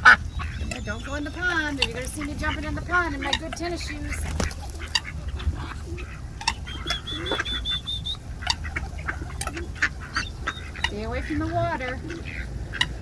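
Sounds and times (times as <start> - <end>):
bird high chirps: 0.0 - 13.0
ducks quacking: 0.0 - 13.0
steady low rumble: 0.0 - 13.0.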